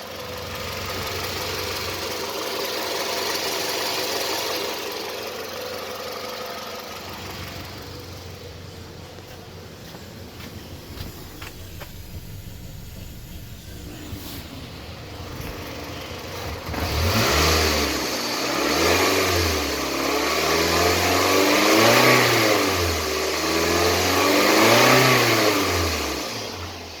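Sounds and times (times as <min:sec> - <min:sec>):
car engine idling and revving: 0:00.0 - 0:27.0.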